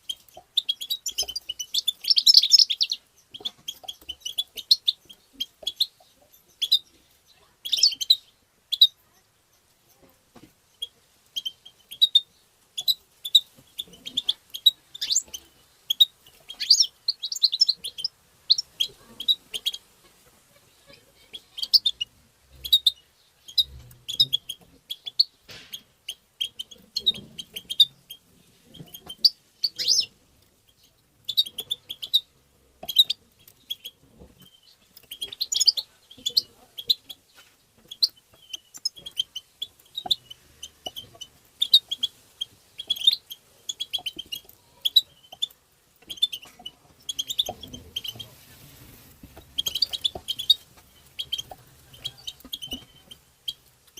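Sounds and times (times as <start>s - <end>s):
goldfinch twittering: 0.0s - 6.9s, 12.8s - 19.8s, 28.9s - 30.1s, 30.7s - 37.1s, 37.9s - 48.3s, 49.4s - 53.7s.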